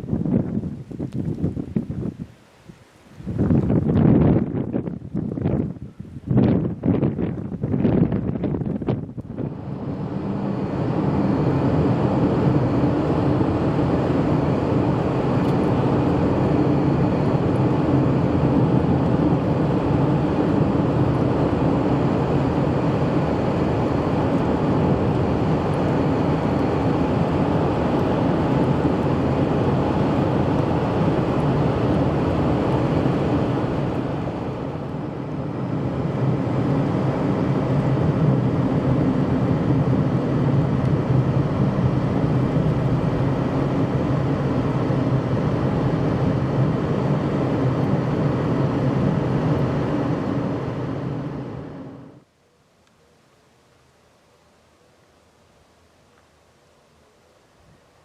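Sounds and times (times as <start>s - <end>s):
motor vehicle running hum: 6.5s - 52.2s.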